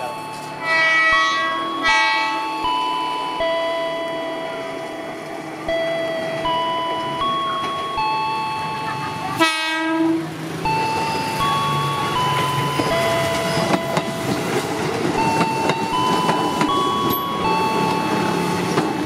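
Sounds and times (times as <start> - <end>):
electric train passing: 0.0 - 19.0
train horn blast: 0.6 - 2.4, 9.4 - 10.3.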